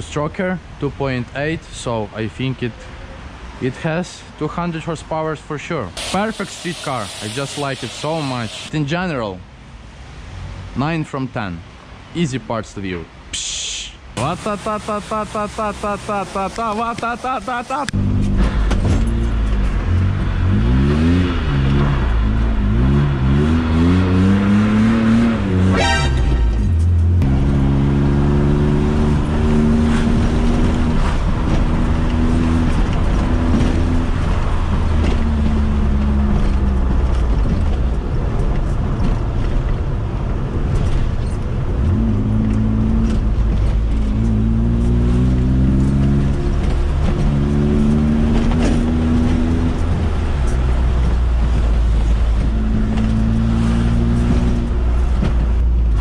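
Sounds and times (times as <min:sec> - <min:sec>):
car engine revving inside cabin: 0:14.4 - 0:37.8, 0:41.7 - 0:56.0.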